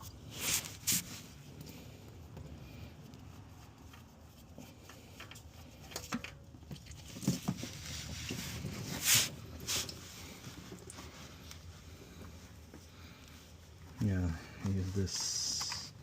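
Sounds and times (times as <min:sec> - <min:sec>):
scraping or rustling: 0:00.0 - 0:02.0, 0:07.0 - 0:12.6.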